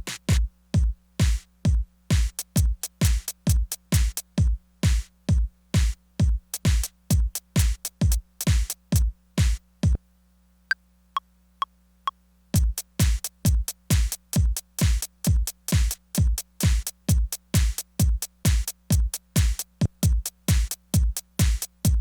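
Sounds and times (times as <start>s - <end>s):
electronic drum beat: 0.0s - 10.0s, 12.6s - 22.0s.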